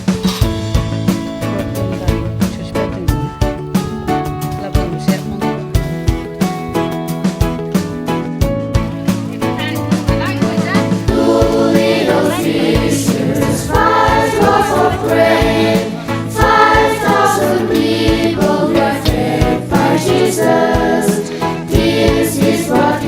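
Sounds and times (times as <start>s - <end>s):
instrumental backing with beat: 0.0s - 17.3s
choir singing church song: 10.0s - 23.0s.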